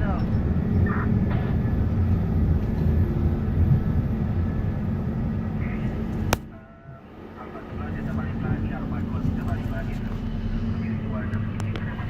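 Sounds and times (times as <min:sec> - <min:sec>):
faint constant hum: 0:00.0 - 0:12.0.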